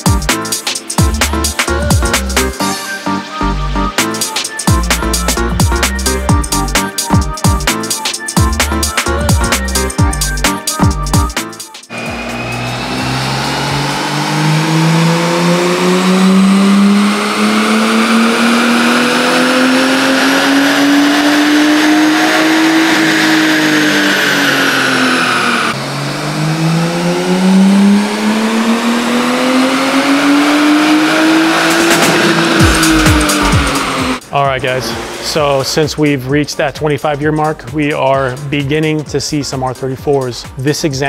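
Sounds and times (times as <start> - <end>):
car engine revving on dyno: 11.9 - 35.7.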